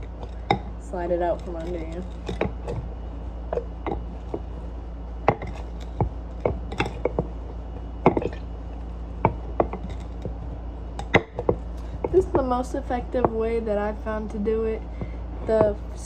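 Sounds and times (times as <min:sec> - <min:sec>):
steady low hum: 0:00.0 - 0:16.0
muddler pounding in a cup: 0:03.5 - 0:08.4.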